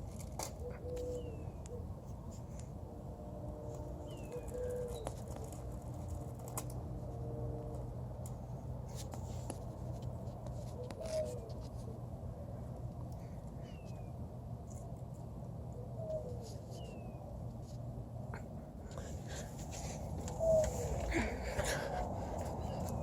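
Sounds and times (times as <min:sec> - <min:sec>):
birds calling: 0:00.4 - 0:02.0, 0:04.0 - 0:05.7, 0:18.4 - 0:23.0.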